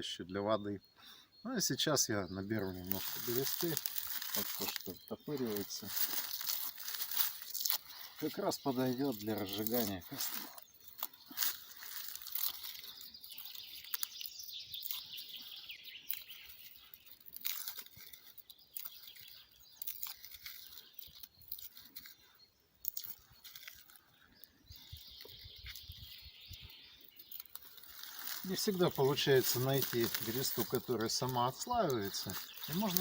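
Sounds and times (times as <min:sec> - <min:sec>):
birds chirping: 0:00.0 - 0:33.0
bark tearing: 0:02.8 - 0:22.2, 0:22.8 - 0:24.0, 0:27.3 - 0:33.0.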